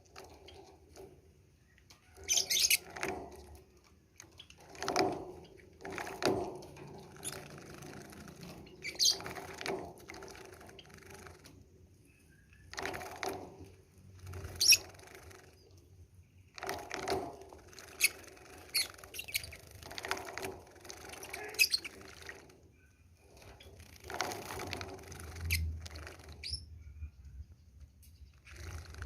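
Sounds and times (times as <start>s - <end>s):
bird wings fluttering and splashing: 2.0s - 11.6s, 12.7s - 15.7s, 16.6s - 22.7s, 23.3s - 26.7s, 28.4s - 29.0s.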